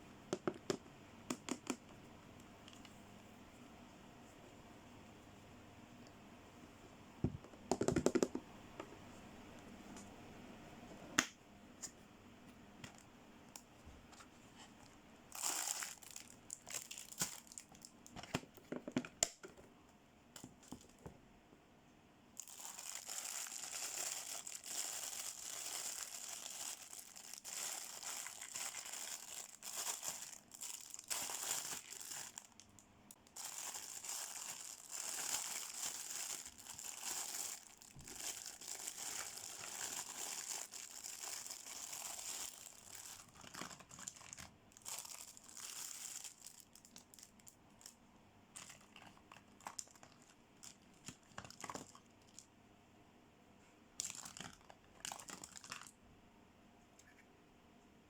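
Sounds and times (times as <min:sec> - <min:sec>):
packaging crinkling and tearing: 0:15.3 - 0:18.5, 0:22.4 - 0:48.0, 0:48.6 - 0:52.4, 0:54.0 - 0:56.0
packaging clicks and rustles: 0:22.4 - 0:47.5, 0:48.6 - 0:52.4.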